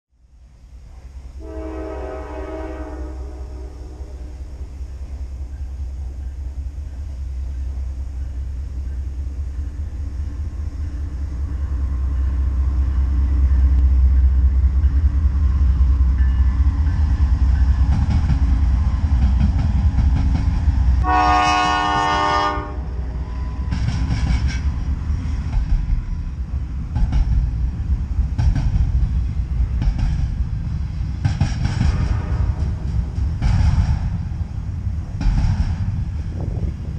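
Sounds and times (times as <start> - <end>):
diesel train engine rumble: 0.1 - 36.9
train horn: 1.4 - 4.9, 21.0 - 23.7, 31.8 - 33.2
train wheels clacking over rails: 5.3 - 22.7, 23.3 - 36.9.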